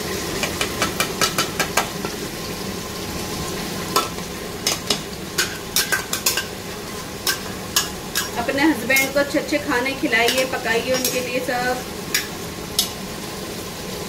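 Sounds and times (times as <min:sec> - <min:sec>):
food sizzling in a pot: 0:00.0 - 0:14.0
spoon scraping metal pot: 0:10.3 - 0:11.3.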